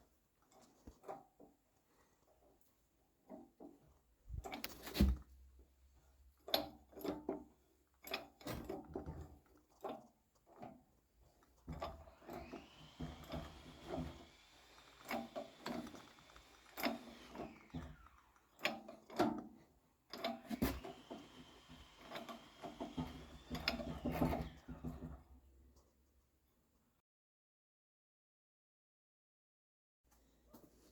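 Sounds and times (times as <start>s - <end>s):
electric power tool spinning: 11.7s - 19.5s, 20.2s - 25.3s.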